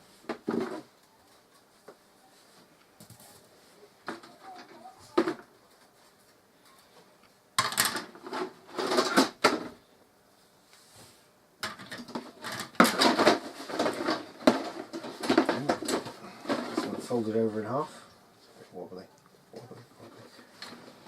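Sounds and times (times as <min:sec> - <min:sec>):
plastic parts rustling and clattering: 0:07.6 - 0:09.8, 0:11.6 - 0:17.4.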